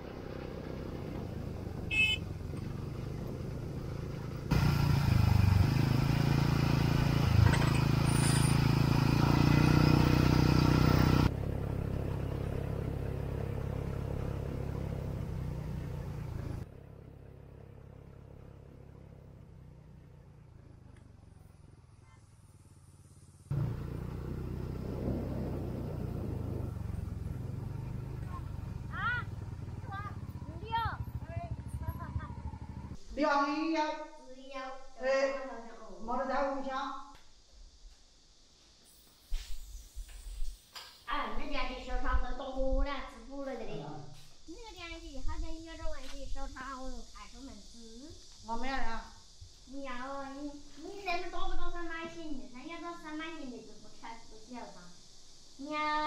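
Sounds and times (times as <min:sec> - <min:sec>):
vehicle engine running: 0:00.0 - 0:33.1.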